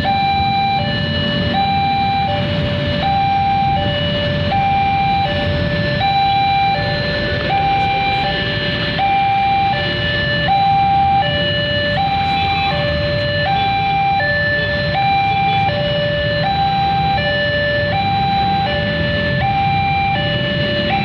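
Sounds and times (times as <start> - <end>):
two-tone electronic alarm: 0.0 - 21.0.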